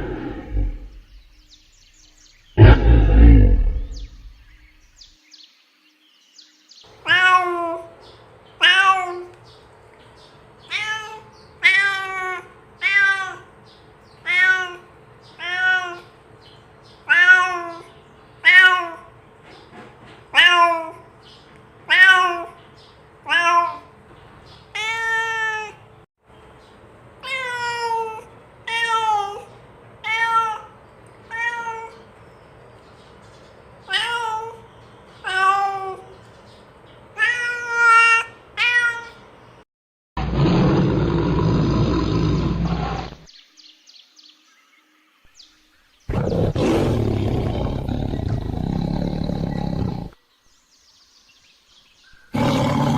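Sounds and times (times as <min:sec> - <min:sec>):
cat meowing: 0:07.1 - 0:07.9, 0:08.6 - 0:09.3, 0:10.7 - 0:13.5, 0:14.2 - 0:16.1, 0:17.1 - 0:19.1, 0:21.9 - 0:22.6, 0:27.2 - 0:32.0, 0:37.2 - 0:39.2.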